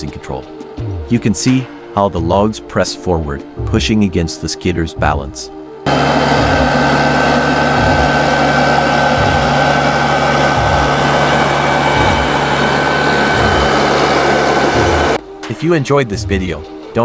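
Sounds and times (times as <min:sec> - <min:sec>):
diesel engine under load: 0:05.9 - 0:15.2
high whine: 0:05.9 - 0:15.2
low pulse: 0:05.9 - 0:15.3.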